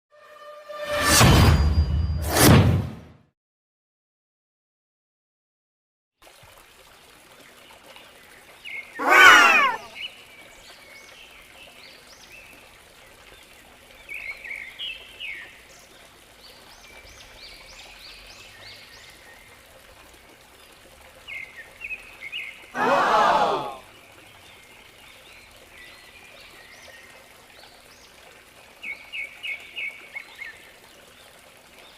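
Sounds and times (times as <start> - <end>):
loud bird calls falling in pitch: 9.0 - 9.9.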